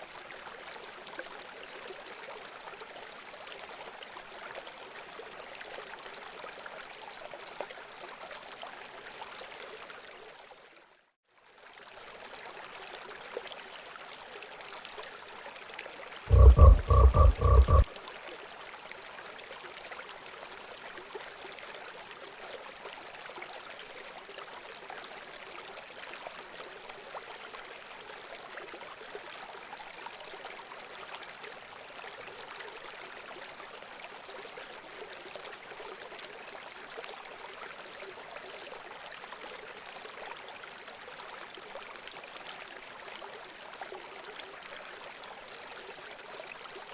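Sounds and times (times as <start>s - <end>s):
running water: 12.1s - 25.0s
animal call pulses: 16.3s - 17.9s.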